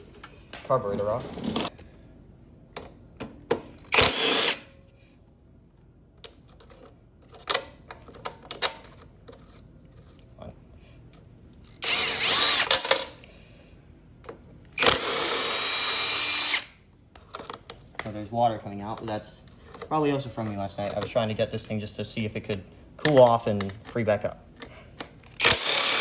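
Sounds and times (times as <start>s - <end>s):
power driver whining: 11.8s - 13.2s, 14.8s - 16.8s, 25.3s - 26.0s.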